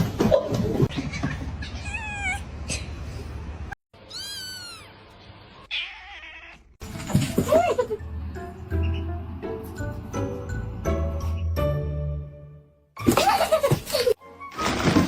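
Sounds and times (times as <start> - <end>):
cat meowing: 1.6 - 2.5, 4.0 - 5.0, 5.6 - 6.8.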